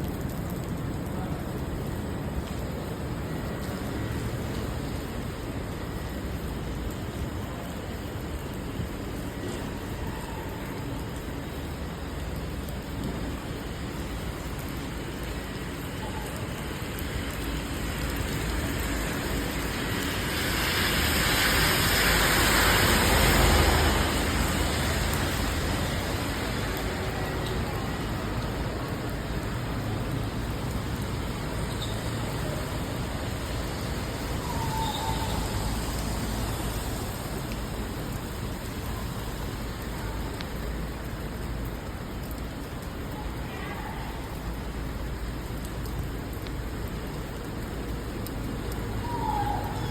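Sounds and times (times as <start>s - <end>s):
city traffic on wet roads: 0.0s - 49.9s
steady rain: 0.0s - 49.9s
tyre hiss on wet road: 11.0s - 49.9s.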